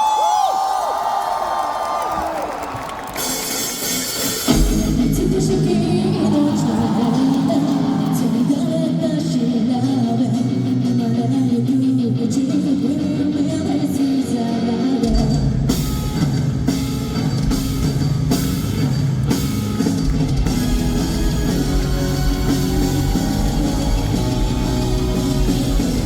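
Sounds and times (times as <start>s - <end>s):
drum kit: 3.0s - 8.9s, 15.0s - 26.0s
bass guitar: 4.5s - 26.0s
electric guitar: 4.5s - 26.0s.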